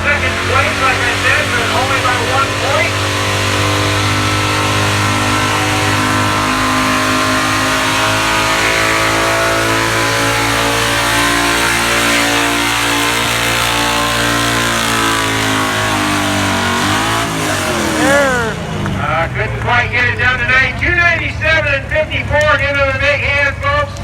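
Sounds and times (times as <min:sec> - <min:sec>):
truck engine at high revs: 0:00.0 - 0:24.0.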